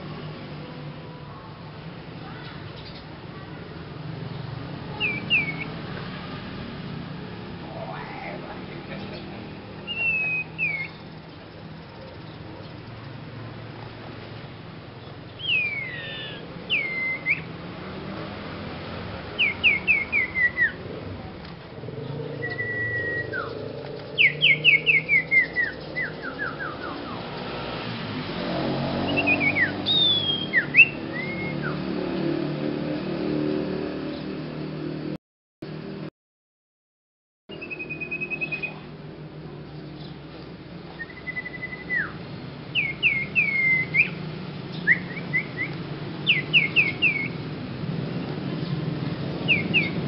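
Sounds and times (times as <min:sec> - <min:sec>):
songbird whistling: 0:04.9 - 0:05.8, 0:09.8 - 0:11.2, 0:15.4 - 0:17.5, 0:19.3 - 0:20.8, 0:22.3 - 0:27.3, 0:29.0 - 0:31.8, 0:37.5 - 0:38.9, 0:40.9 - 0:47.4, 0:49.4 - 0:50.0.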